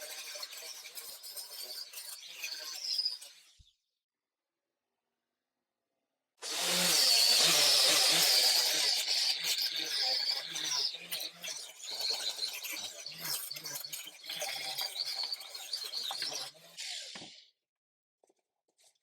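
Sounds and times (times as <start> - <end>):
power tool running: 6.4 - 17.4.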